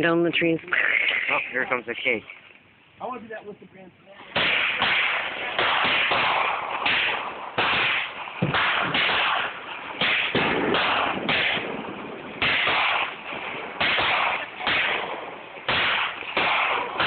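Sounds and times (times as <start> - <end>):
fireworks bangs: 4.2 - 17.0.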